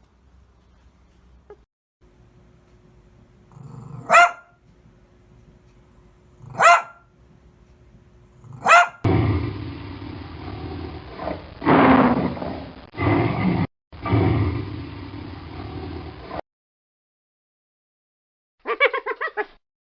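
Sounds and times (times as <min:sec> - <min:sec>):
dog growling: 0:03.5 - 0:04.4, 0:06.4 - 0:06.9, 0:08.4 - 0:14.8
dog barking: 0:03.6 - 0:04.6, 0:06.4 - 0:07.0, 0:08.5 - 0:09.1.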